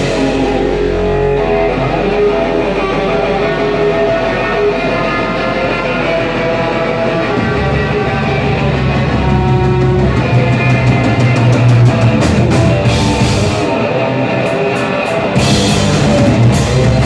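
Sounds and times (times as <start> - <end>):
low bass line: 0.0 - 14.4, 15.4 - 17.0
band music with electric guitar: 0.0 - 17.0.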